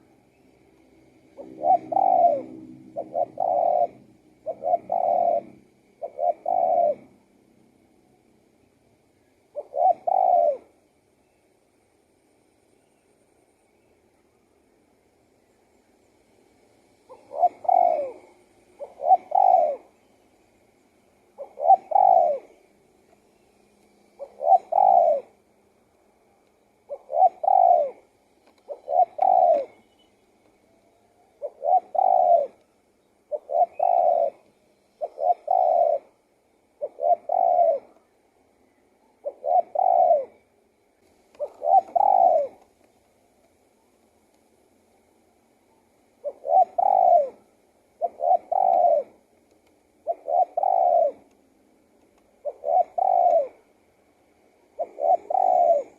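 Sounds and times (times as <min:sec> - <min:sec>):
dove cooing: 0:01.0 - 0:07.3, 0:09.2 - 0:10.8, 0:17.1 - 0:20.1, 0:21.3 - 0:22.8, 0:24.1 - 0:25.4, 0:26.8 - 0:40.5, 0:41.3 - 0:42.8, 0:45.8 - 0:49.3, 0:50.0 - 0:51.4, 0:52.4 - 0:53.7, 0:54.6 - 0:55.9.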